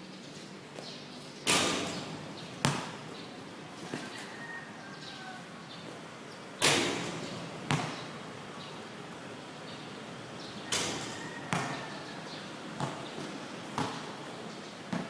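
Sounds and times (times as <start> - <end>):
basketball bouncing on hard surface: 2.6 - 3.2, 6.6 - 8.2, 10.8 - 11.8, 12.8 - 14.2.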